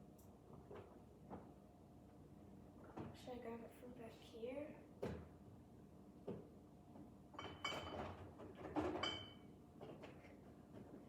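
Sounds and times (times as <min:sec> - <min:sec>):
bottles clinking in a fridge: 0:07.4 - 0:09.4.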